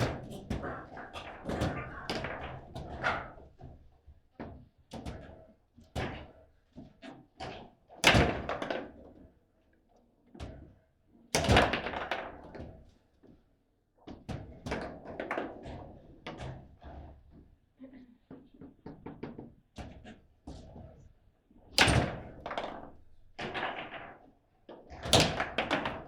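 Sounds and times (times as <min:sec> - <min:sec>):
foosball knocks and clacks: 0:00.0 - 0:09.3, 0:11.4 - 0:12.9, 0:14.0 - 0:17.5, 0:18.3 - 0:26.0.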